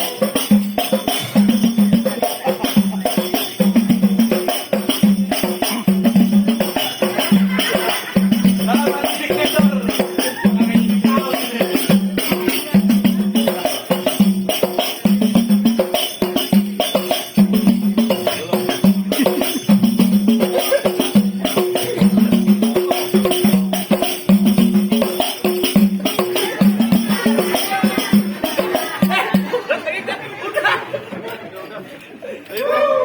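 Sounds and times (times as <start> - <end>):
hand drums with jingling rattle: 0.0 - 31.6
low drum beat: 25.7 - 29.6.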